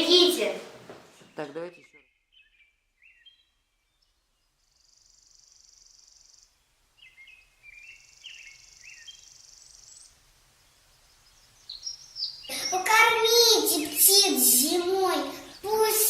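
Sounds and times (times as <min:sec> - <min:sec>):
birds chirping: 0:00.0 - 0:16.0
high buzzing bird trills: 0:10.9 - 0:14.9.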